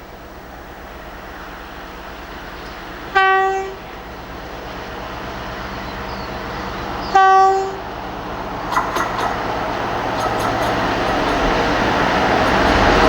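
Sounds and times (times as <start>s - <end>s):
train rumble: 0.0s - 13.0s
locomotive horn blasts: 3.1s - 3.9s, 7.1s - 7.9s.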